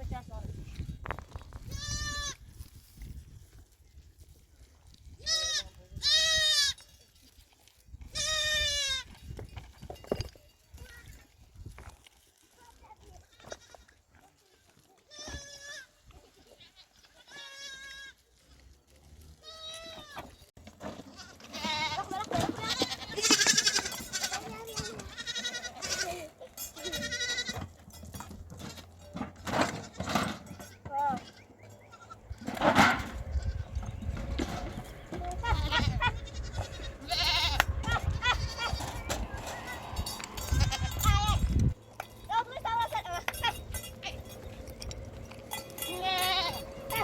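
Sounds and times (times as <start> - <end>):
goats bleating: 1.7 - 2.4, 5.2 - 6.9, 8.1 - 9.1, 14.8 - 18.3, 19.2 - 20.2, 21.1 - 27.7, 29.6 - 39.8, 40.4 - 41.5, 45.8 - 47.0.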